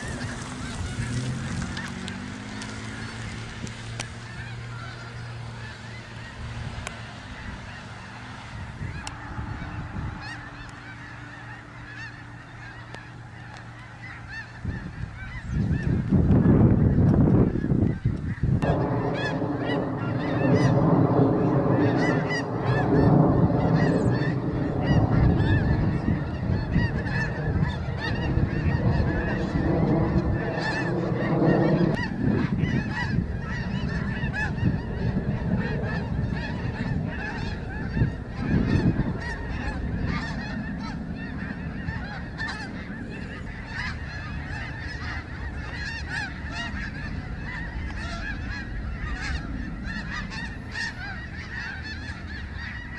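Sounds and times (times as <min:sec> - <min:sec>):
geese honking: 0:00.0 - 0:52.9
steady low drone: 0:18.6 - 0:52.9.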